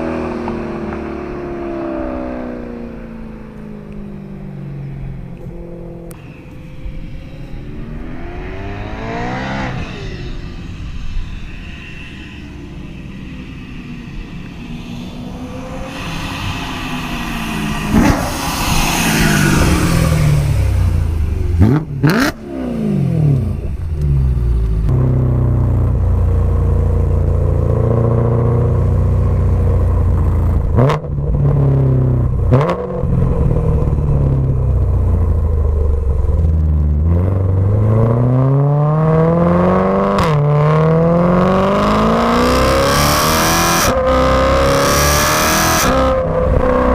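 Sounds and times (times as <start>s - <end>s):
car engine revving: 0.0s - 46.9s
exhaust cracks: 5.1s - 38.5s.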